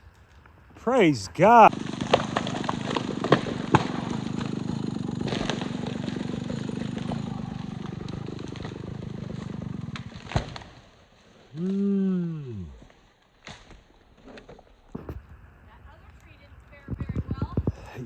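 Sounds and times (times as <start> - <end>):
chainsaw engine idling: 0.8 - 10.6.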